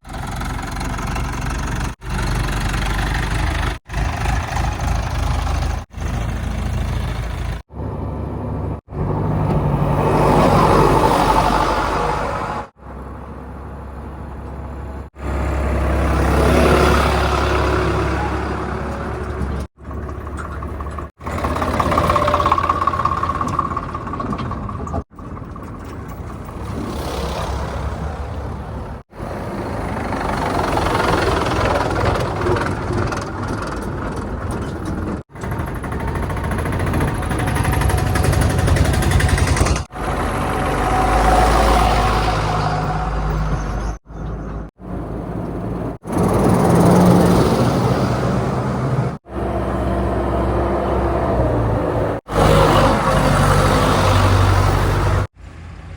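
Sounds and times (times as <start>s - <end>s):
heavy diesel engines revving: 0.0s - 55.9s.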